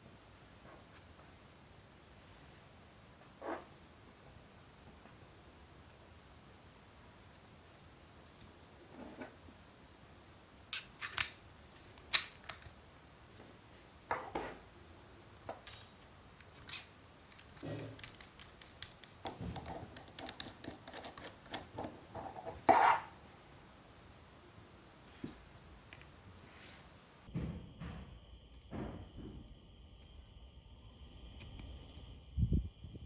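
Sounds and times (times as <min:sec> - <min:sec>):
small hard parts clicking: 0:10.7 - 0:11.4, 0:12.0 - 0:12.8, 0:15.6 - 0:22.0.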